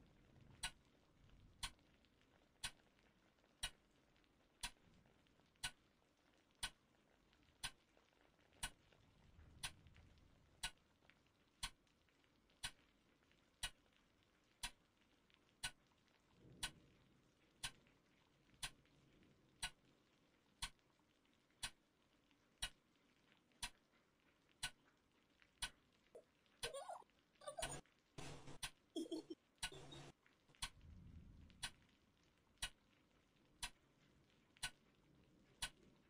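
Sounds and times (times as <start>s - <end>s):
clock ticking: 0.6s - 0.8s, 1.6s - 1.9s, 2.6s - 2.9s, 4.6s - 4.8s, 5.6s - 5.8s, 6.6s - 6.8s, 7.6s - 7.8s, 8.5s - 8.9s, 10.5s - 10.8s, 11.6s - 11.8s, 12.6s - 12.8s, 13.6s - 13.9s, 14.6s - 14.9s, 15.6s - 15.8s, 16.5s - 16.9s, 17.6s - 17.9s, 18.6s - 18.9s, 19.6s - 19.8s, 20.6s - 20.8s, 21.6s - 21.8s, 22.6s - 22.8s, 23.6s - 23.9s, 24.6s - 24.8s, 26.6s - 30.8s, 31.6s - 31.9s, 32.6s - 32.8s, 33.6s - 33.8s, 34.6s - 34.8s, 35.6s - 35.9s
faint low rumble: 29.0s - 36.0s.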